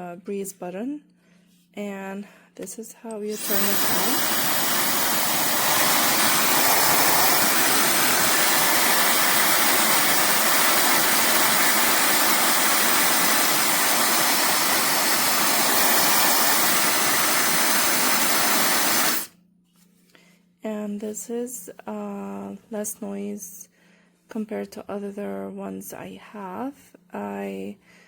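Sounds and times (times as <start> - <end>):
hair dryer running: 3.3 - 19.3.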